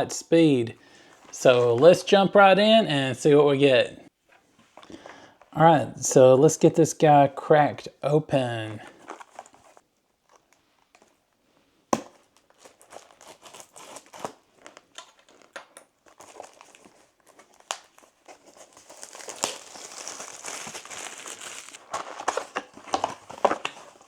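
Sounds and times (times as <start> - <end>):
plastic wrap tearing and crinkling: 12.0 - 24.0.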